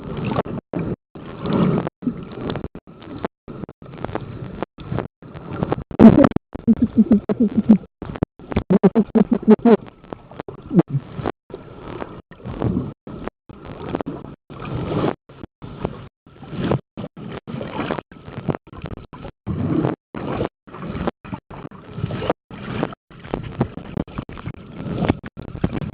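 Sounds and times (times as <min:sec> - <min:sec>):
muffled rushing and rubbing: 0:04.9 - 0:09.8.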